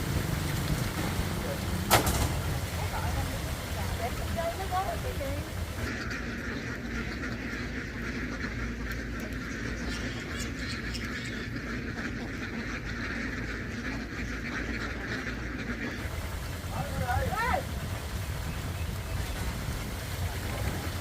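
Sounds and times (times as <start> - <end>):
flock of ducks quacking: 0.0 - 21.0.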